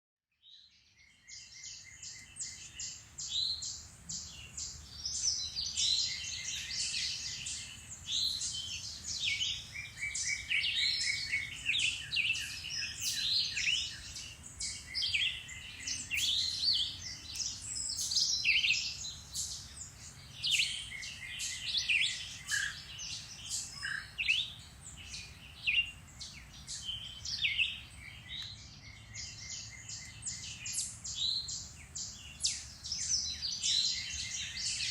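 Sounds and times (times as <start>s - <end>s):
songbirds singing and chirping: 0.3s - 34.9s.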